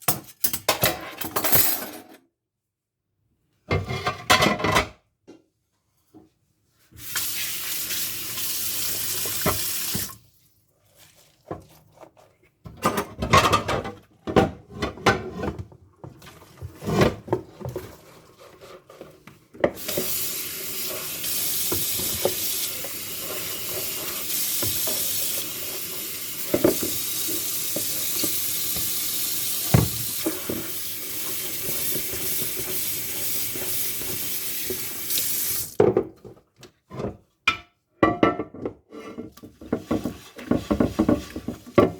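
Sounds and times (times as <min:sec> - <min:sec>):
tap running into a sink: 0:08.4 - 0:10.2, 0:19.6 - 0:35.9
dishes clinking and knocking: 0:12.7 - 0:15.6, 0:37.5 - 0:38.8.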